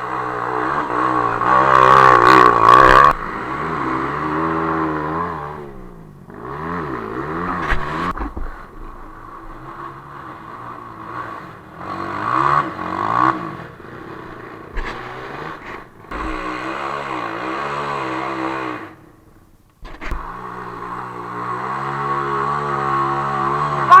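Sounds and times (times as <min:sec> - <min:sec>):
off-road vehicle engine revving: 0:00.0 - 0:24.0
engine knocks: 0:05.6 - 0:10.9, 0:14.1 - 0:17.2.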